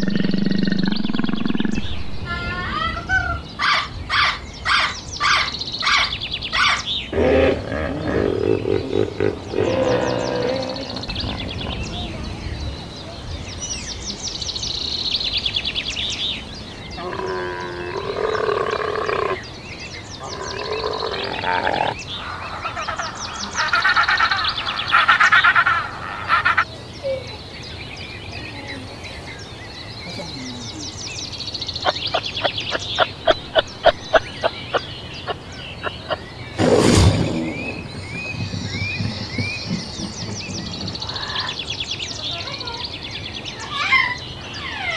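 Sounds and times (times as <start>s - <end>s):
animal pulsed trills: 0.0s - 1.9s, 31.8s - 36.4s
loud burst: 36.6s - 38.2s.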